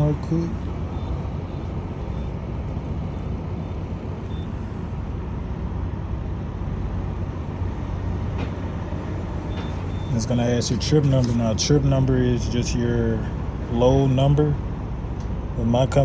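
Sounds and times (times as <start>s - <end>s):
diesel truck engine idling: 0.0s - 16.0s
keypad beeps: 0.9s - 4.8s, 9.5s - 10.2s.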